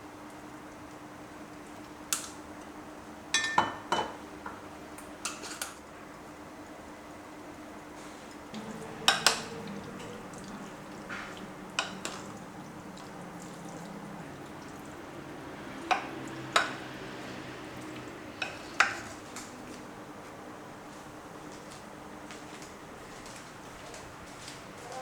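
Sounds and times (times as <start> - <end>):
utensils clinking against dishes: 3.4 - 4.2, 8.5 - 12.4, 18.3 - 19.5
steady low hum: 8.2 - 25.0.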